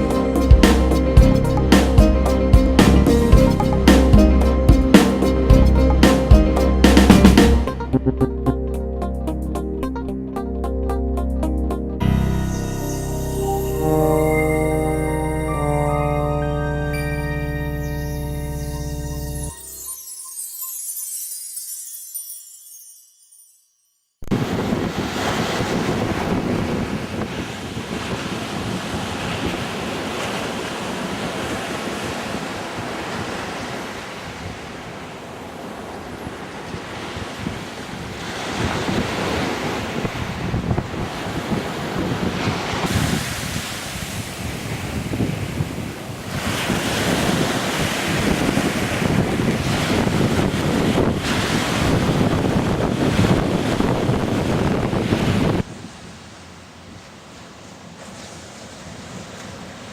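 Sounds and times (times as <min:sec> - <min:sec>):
wind buffeting the microphone: 0:24.3 - 0:30.6, 0:36.2 - 0:55.9
sea water rushing: 0:24.3 - 0:56.6.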